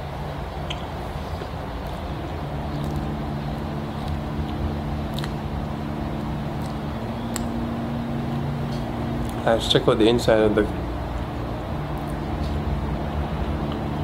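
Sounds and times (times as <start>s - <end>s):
steady low hum: 0.0s - 14.0s
quiet chewing: 3.9s - 5.4s.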